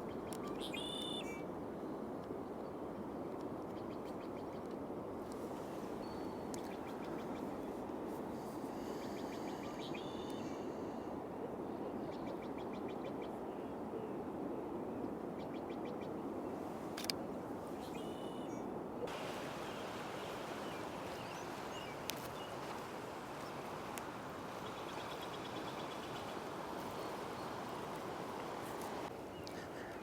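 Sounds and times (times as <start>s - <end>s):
songbirds chirping trills: 17.8s - 30.0s
steady rushing background noise: 19.1s - 29.3s.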